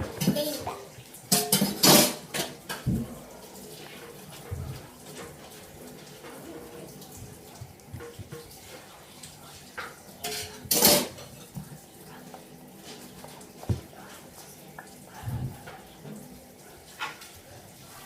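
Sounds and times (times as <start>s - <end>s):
utensil clattering against bowl: 1.3s - 2.9s, 9.8s - 11.3s.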